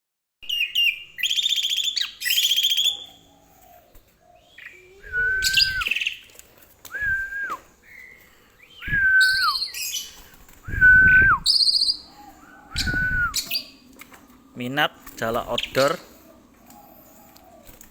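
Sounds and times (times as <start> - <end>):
starling whistled notes: 4.7 - 6.2, 6.9 - 13.8.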